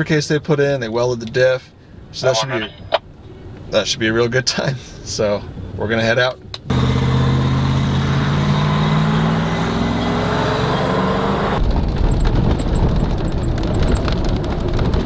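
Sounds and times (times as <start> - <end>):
low rumble of driving noise: 6.6 - 15.0
truck engine pulling away: 6.7 - 15.0
rattles and knocks: 11.6 - 15.0.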